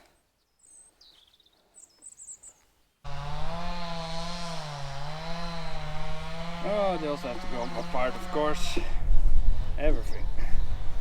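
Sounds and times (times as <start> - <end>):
faint bird chirps: 0.0 - 2.8
power tool motor running: 3.1 - 8.8.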